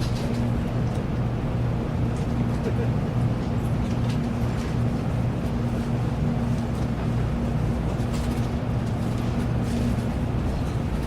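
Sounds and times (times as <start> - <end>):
train cabin hum and rumble: 0.0 - 11.0.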